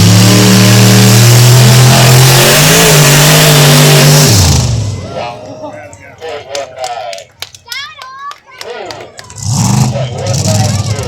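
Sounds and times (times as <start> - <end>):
truck engine revving loud: 0.0 - 5.4, 9.2 - 11.0.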